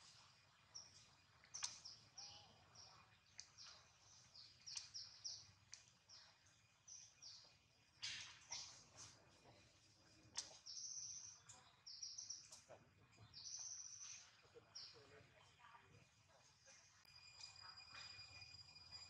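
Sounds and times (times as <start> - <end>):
high bird chirping: 0.7 - 5.5, 10.4 - 15.2
sharp clicks: 1.5 - 1.9.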